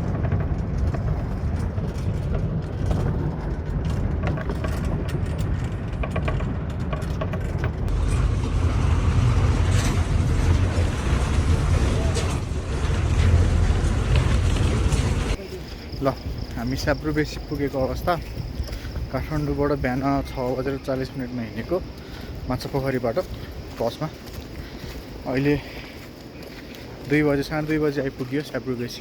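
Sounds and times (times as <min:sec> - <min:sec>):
rattling clicks: 0:00.0 - 0:19.9
vehicle engine rumble: 0:00.0 - 0:29.0
voices: 0:10.5 - 0:29.0.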